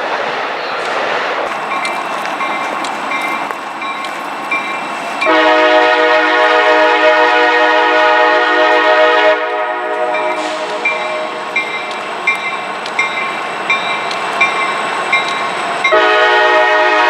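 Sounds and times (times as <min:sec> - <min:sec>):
train rumbling by: 0:00.0 - 0:17.0
train horn chord: 0:01.5 - 0:17.0.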